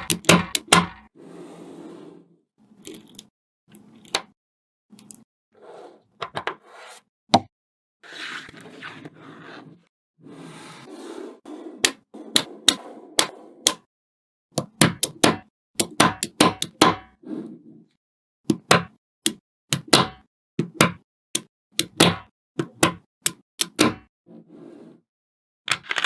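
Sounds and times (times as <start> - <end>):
balls rolling and shuffling: 8.1 - 13.6.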